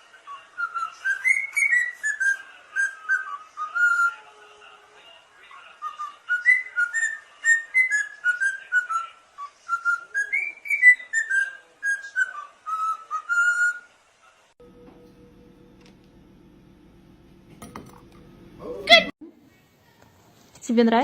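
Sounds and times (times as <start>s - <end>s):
parrot whistling a tune: 0.2s - 4.3s, 5.8s - 13.9s.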